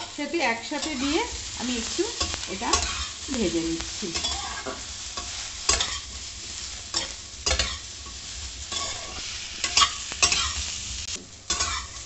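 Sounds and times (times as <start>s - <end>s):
vegetables sizzling in hot oil: 0.0s - 12.0s
metal spatula scraping pan: 0.7s - 3.2s, 4.1s - 10.6s, 11.5s - 12.0s.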